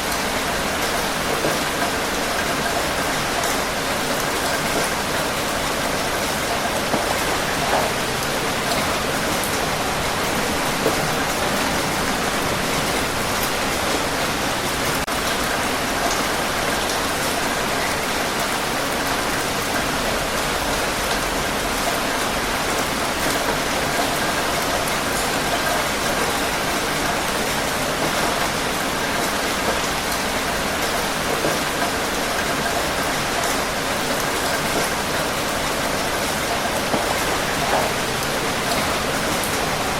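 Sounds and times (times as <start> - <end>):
heavy rain hissing: 0.0 - 16.6, 32.4 - 39.9.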